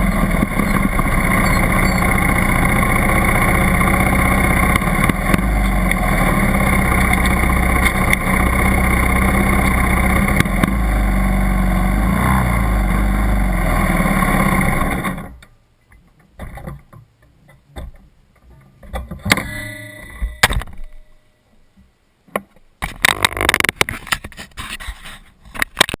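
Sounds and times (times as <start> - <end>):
dirt bike engine running: 0.0 - 15.1.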